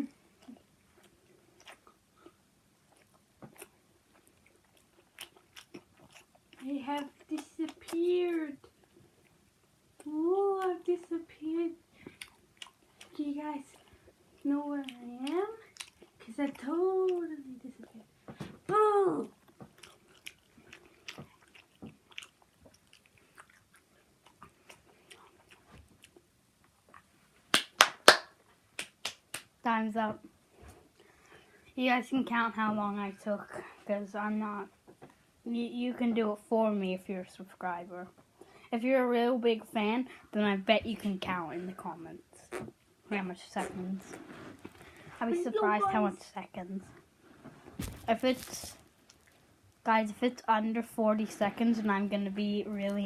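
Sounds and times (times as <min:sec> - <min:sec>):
chewing sausage: 0:00.0 - 0:18.4, 0:19.2 - 0:27.5, 0:47.8 - 0:49.8.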